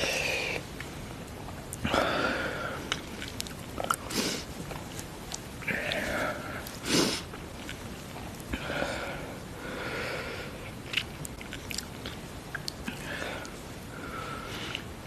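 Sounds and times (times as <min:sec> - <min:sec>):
sharp noisy breaths: 0:00.0 - 0:00.7
person sniffling: 0:06.8 - 0:07.3
wet mouth clicks: 0:10.8 - 0:13.6.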